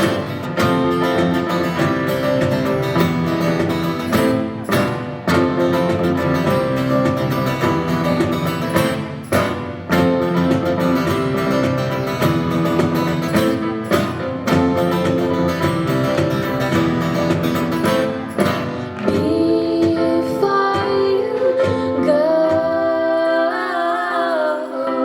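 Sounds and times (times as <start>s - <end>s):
guitar strumming chords: 0.0s - 22.9s.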